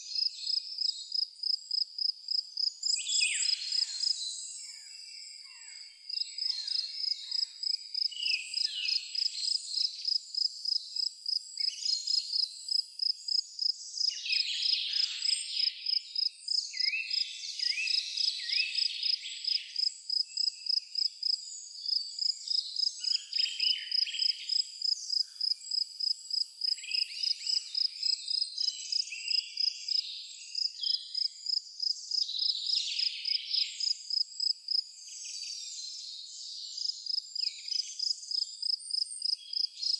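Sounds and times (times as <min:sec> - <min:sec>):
songbirds singing: 0:00.0 - 0:39.9
crickets chirping: 0:23.9 - 0:30.0, 0:30.6 - 0:32.5, 0:33.2 - 0:34.8, 0:36.8 - 0:39.9.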